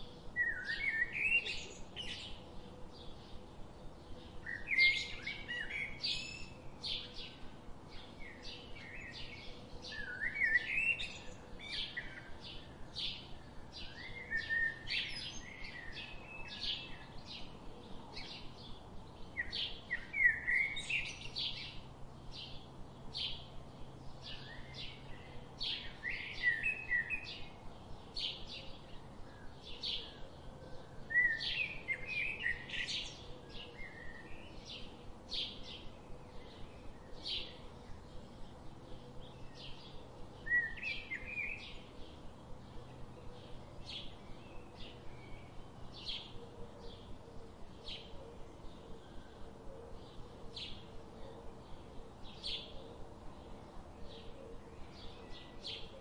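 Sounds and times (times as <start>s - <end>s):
birds chirping and singing: 0.0s - 56.0s.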